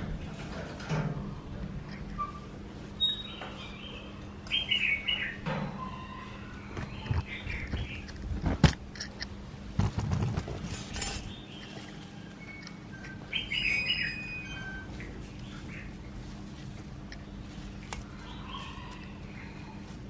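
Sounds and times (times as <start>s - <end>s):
small birds chirping: 1.8s - 9.4s, 10.6s - 20.0s
rough scraping clatter: 8.1s - 13.2s.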